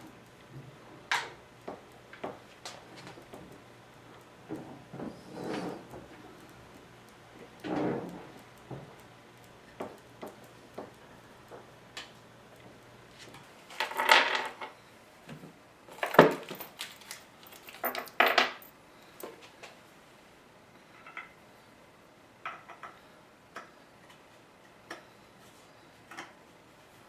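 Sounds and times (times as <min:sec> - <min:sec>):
objects clattering: 0:15.9 - 0:19.4.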